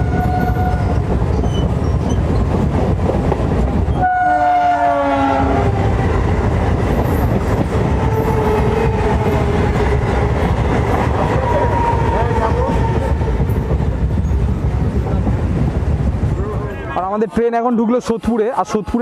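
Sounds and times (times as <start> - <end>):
train horn: 0.0 - 1.0, 4.0 - 5.8
train wheels rumbling on rail: 0.0 - 17.2.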